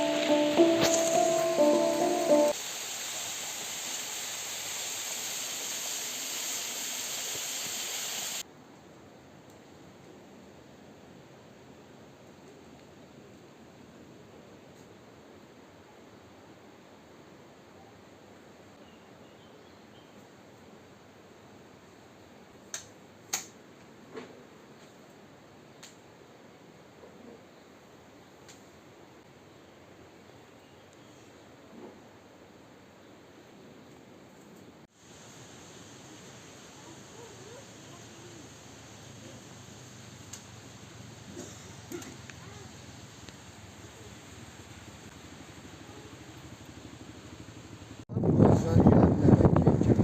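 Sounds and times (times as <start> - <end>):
waterfall rushing: 0.0 - 6.2
faint steady hiss: 0.0 - 48.1.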